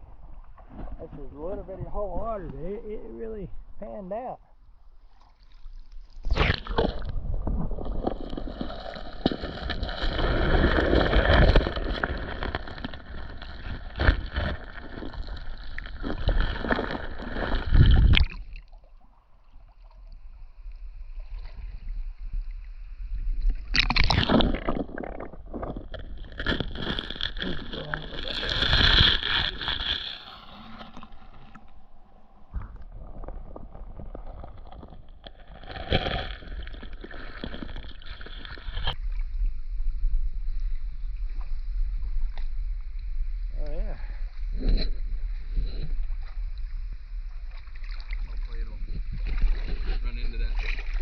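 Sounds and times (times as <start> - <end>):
creek water splashing: 5.0 - 19.0, 23.7 - 31.8, 47.4 - 51.0.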